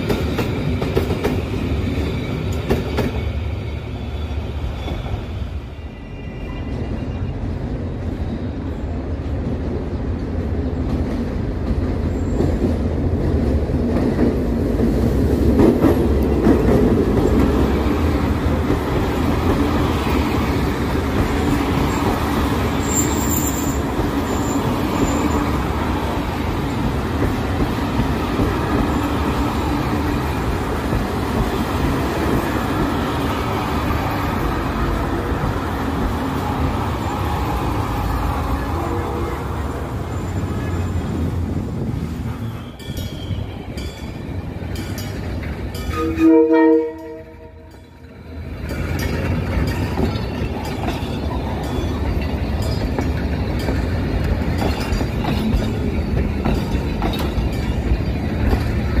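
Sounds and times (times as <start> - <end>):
train rumbling and clattering: 0.0 - 59.0
high wheel squeals: 1.6 - 7.6, 21.7 - 25.7, 42.3 - 44.4.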